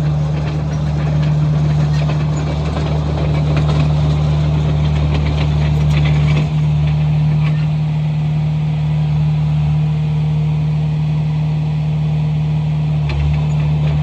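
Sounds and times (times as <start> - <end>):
light rattles: 0.0 - 7.8
bulldozer diesel engine running: 0.0 - 14.0.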